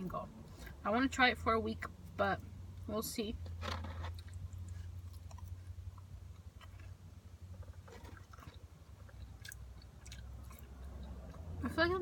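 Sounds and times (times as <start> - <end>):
person chewing food: 3.9 - 11.6.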